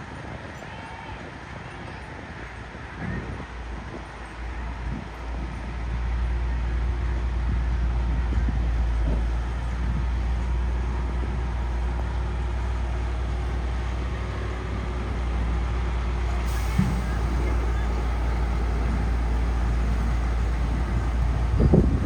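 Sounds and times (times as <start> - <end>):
heavy diesel engine running: 4.4 - 22.0.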